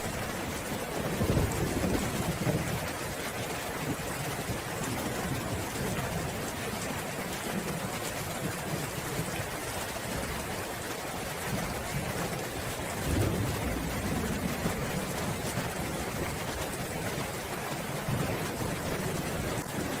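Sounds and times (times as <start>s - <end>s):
distant thunder rumbles: 0.0s - 3.0s, 12.9s - 17.3s
steady rain falling: 0.0s - 20.0s.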